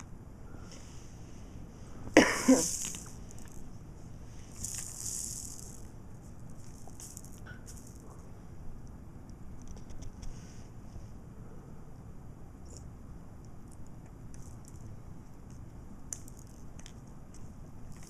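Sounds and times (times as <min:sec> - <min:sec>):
breathy hissing sounds: 0:00.4 - 0:05.9.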